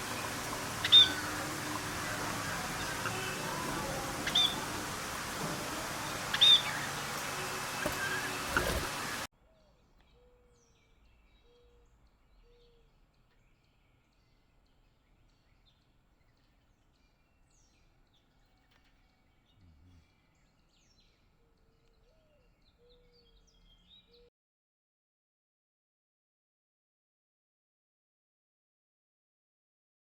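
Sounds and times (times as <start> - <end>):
steady noisy background: 0.0 - 9.3
birds chirping: 0.0 - 24.3.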